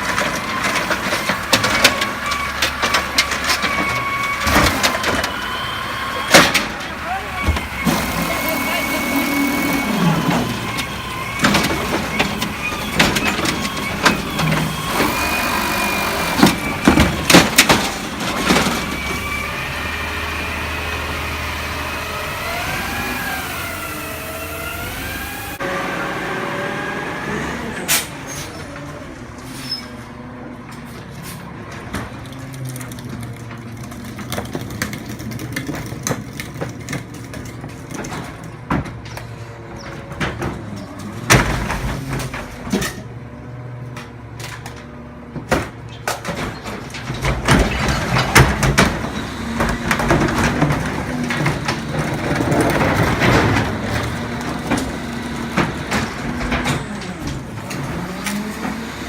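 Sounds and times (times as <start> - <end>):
garbage truck engine running: 0.0 - 59.0.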